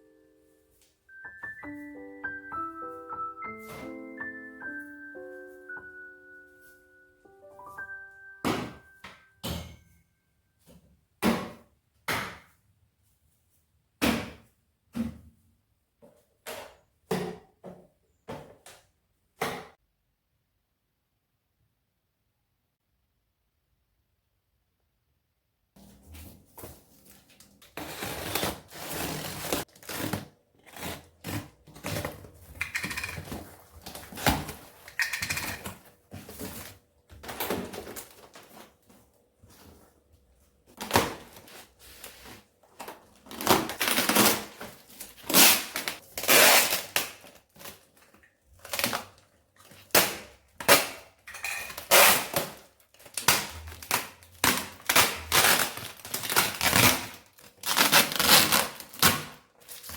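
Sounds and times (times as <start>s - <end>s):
packaging crinkling and rustling: 26.1s - 39.9s, 40.7s - 50.8s, 51.7s - 59.9s.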